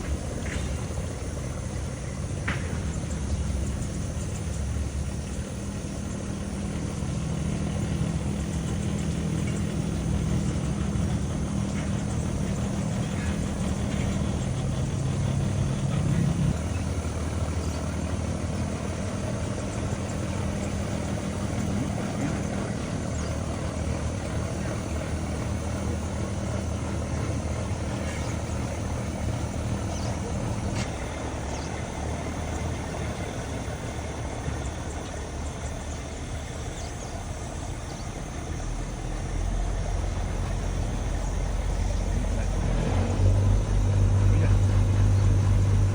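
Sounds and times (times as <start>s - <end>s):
boat diesel engine droning: 0.0s - 45.9s.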